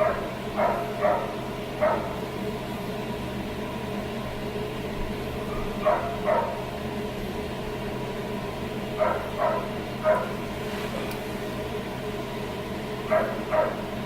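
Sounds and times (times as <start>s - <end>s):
dog barking: 0.0s - 2.2s, 5.5s - 6.6s, 9.0s - 10.4s, 13.1s - 13.9s
steady background hum: 0.0s - 14.0s.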